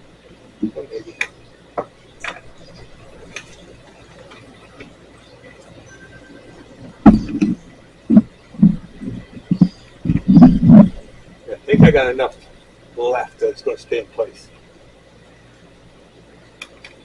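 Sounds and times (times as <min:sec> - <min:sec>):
loud knocks and bumps: 0:07.0 - 0:11.0.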